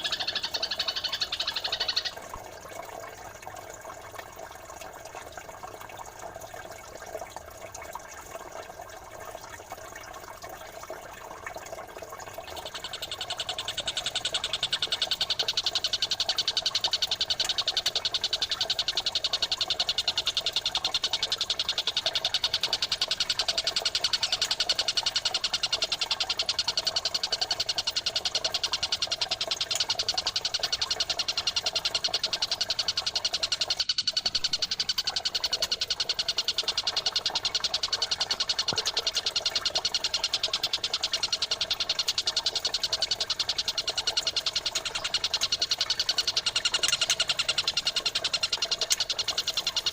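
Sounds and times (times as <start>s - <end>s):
birds chirping: 0.0s - 2.4s, 12.4s - 26.8s, 28.6s - 49.9s
trickling water: 0.0s - 49.9s.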